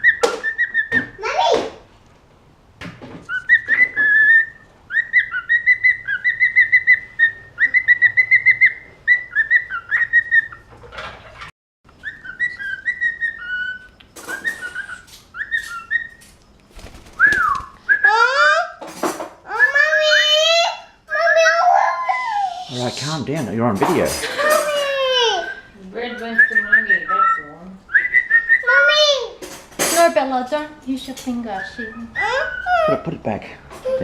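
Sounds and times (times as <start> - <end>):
parrot whistling: 0.0 - 1.0, 3.3 - 10.7, 12.0 - 16.2, 17.2 - 18.7, 24.4 - 28.9, 31.5 - 33.0
parrot chirps: 11.9 - 16.4, 31.5 - 33.0.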